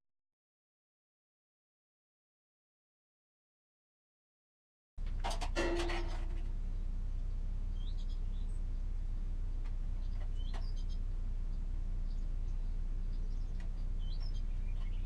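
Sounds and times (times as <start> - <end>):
low hum: 5.0 - 15.0
faint bird chirps: 7.2 - 8.9, 9.9 - 15.0.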